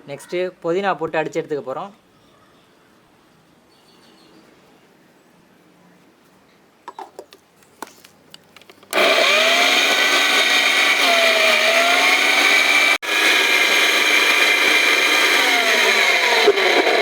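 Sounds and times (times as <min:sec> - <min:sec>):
mixer grinder running: 0:08.9 - 0:17.0.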